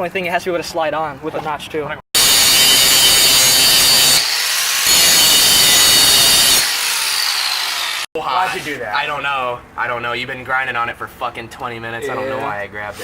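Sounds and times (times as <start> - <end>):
power grinder grinding steel: 2.2 - 8.1.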